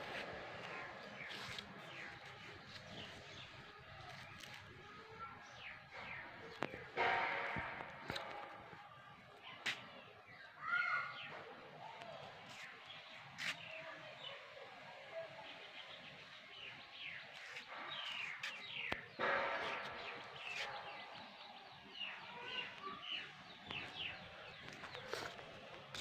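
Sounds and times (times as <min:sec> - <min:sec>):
small birds chirping: 0:15.3 - 0:26.0.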